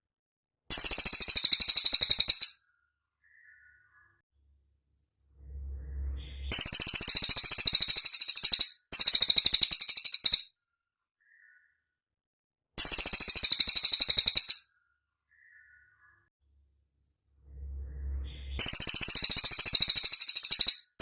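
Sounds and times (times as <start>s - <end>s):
songbird rapid high trill: 5.8s - 10.4s, 17.8s - 20.9s.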